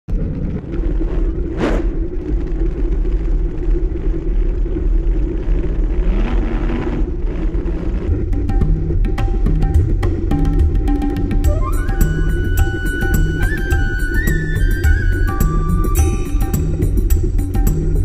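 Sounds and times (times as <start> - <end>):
road noise: 0.1 - 18.0
wind buffeting microphone: 0.1 - 18.0
short whoosh: 1.2 - 2.2
music with a beat: 8.1 - 18.0.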